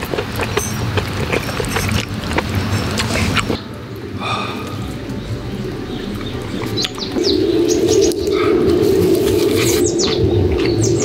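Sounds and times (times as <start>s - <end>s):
bird cooing: 2.5s - 11.0s
falling bird chirps: 4.8s - 11.0s.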